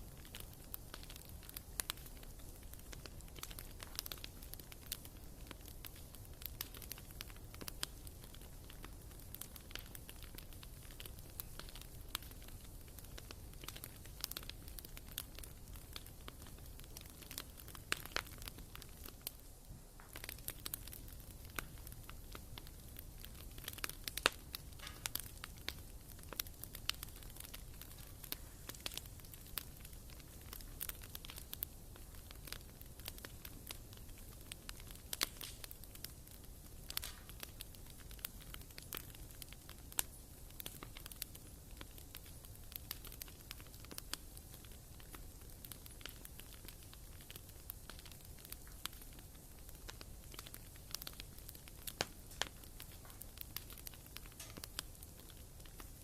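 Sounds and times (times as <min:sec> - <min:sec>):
firewood crackling and popping: 0:00.0 - 0:56.0.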